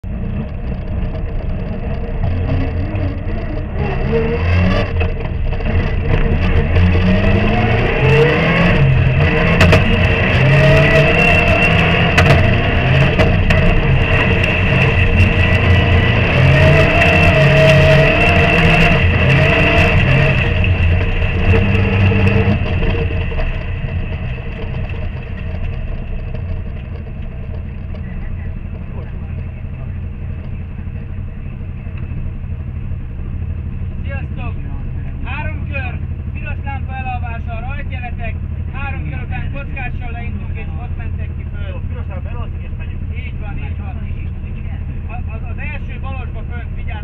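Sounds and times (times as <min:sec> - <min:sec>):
high whine: 0:00.0 - 0:47.0
rally car engine accelerating: 0:00.0 - 0:47.0.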